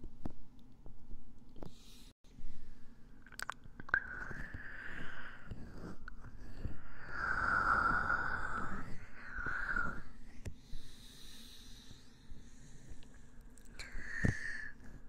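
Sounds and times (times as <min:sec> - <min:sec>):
scratching on a microphone: 0:04.1 - 0:10.0.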